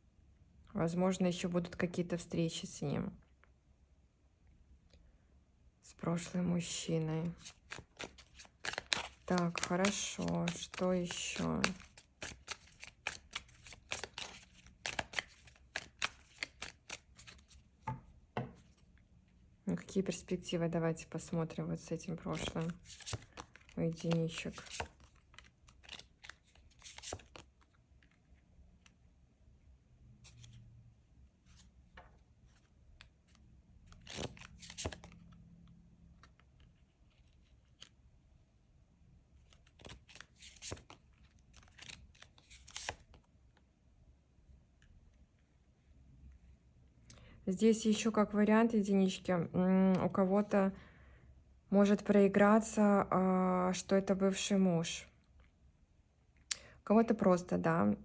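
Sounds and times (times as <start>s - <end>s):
cards being shuffled: 7.3s - 17.7s, 22.2s - 28.2s, 32.5s - 35.4s, 39.4s - 43.3s.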